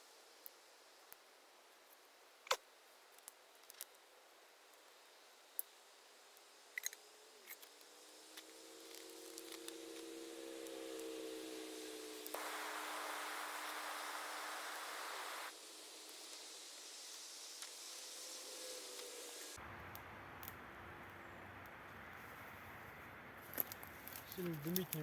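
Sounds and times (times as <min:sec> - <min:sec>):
campfire crackling: 0:00.0 - 0:25.0
low multi-tone hum: 0:07.1 - 0:22.1.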